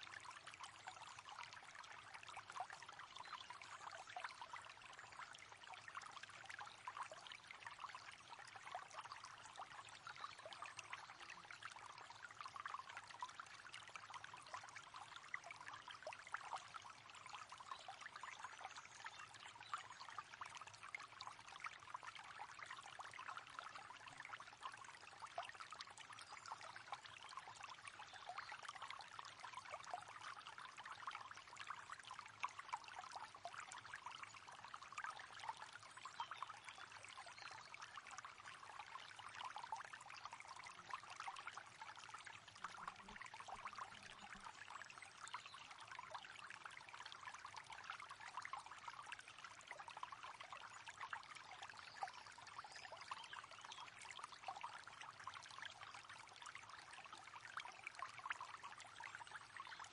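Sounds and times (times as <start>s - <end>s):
river water flowing: 28.6s - 50.5s.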